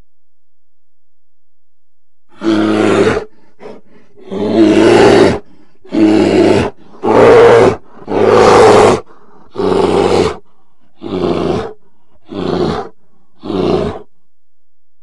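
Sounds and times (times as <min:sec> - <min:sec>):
bear roaring: 0:02.3 - 0:14.1.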